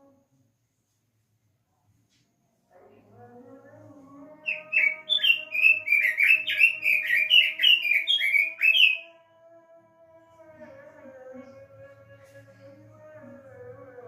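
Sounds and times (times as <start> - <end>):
bird singing warbling notes: 4.5 - 9.1.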